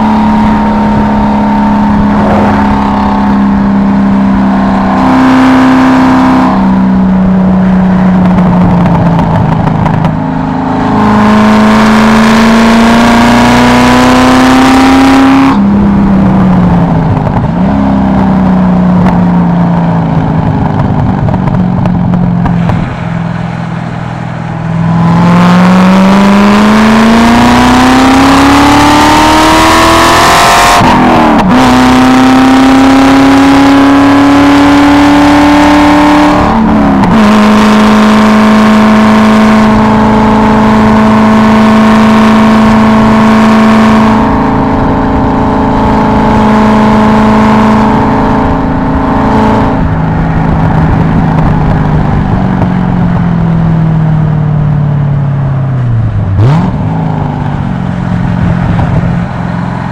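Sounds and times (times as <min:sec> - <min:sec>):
car engine accelerating: 0:00.0 - 0:59.9
wind and road hiss: 0:19.5 - 0:26.6.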